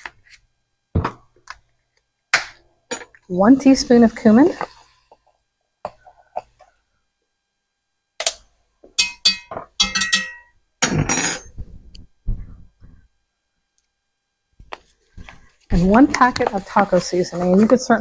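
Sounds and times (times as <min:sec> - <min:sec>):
metal utensils clinking: 0:09.0 - 0:10.5
rustling scrape: 0:14.8 - 0:18.0.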